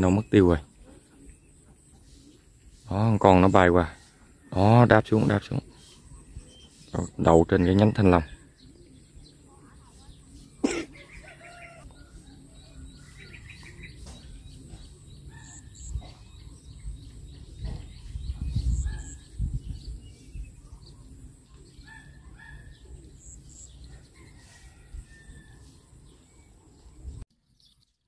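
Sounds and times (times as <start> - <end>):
small birds chirping: 0.0 - 28.0
low rumbling on microphone: 14.2 - 23.2.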